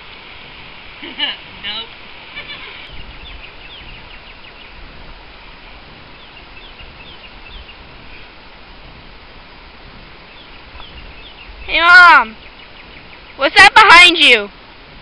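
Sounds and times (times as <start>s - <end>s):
bird chirping: 2.4s - 8.4s, 10.2s - 14.2s.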